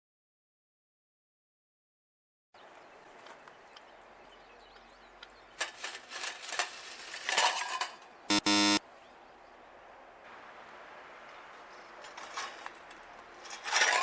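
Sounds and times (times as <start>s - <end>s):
buzzy electronic beeps: 8.3s - 8.8s.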